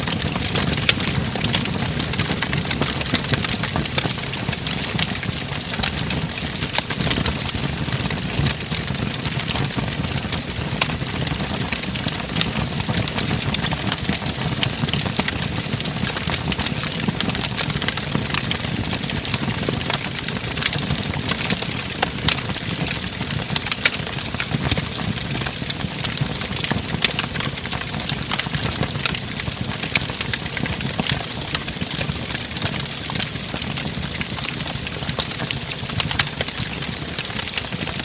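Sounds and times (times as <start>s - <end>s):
fire crackling and popping: 0.0s - 38.0s
low roar of flames: 0.0s - 38.0s.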